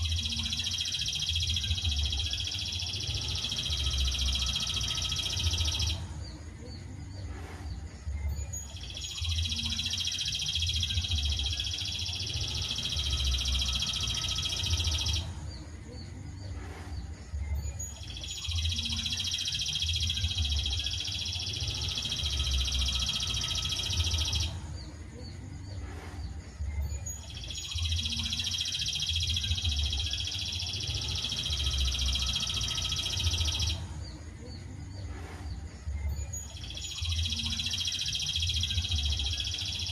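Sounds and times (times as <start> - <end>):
songbird chattering trill: 0.0 - 6.9, 17.7 - 25.4, 26.9 - 34.7.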